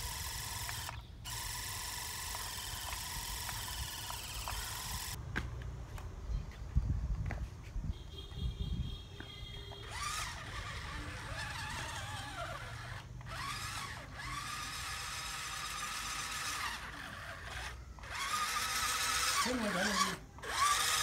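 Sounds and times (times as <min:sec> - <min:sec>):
toy truck electric motor whining: 0:00.0 - 0:05.2, 0:09.7 - 0:21.0.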